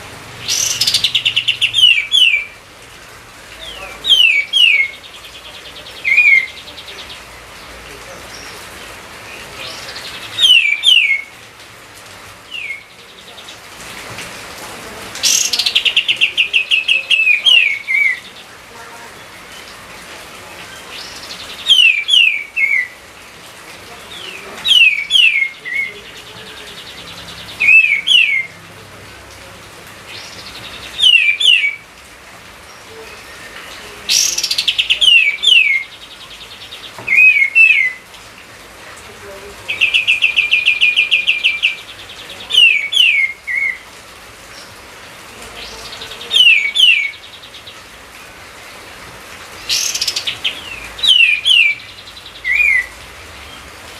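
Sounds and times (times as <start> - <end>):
songbird whistling phrases: 0.5 - 2.6, 3.7 - 5.1, 5.8 - 7.2, 9.7 - 11.3, 12.5 - 12.9, 15.2 - 18.3, 21.0 - 23.0, 24.2 - 26.0, 27.6 - 28.5, 30.2 - 31.8, 37.1 - 38.0, 39.7 - 43.8, 45.8 - 47.2, 49.7 - 52.9.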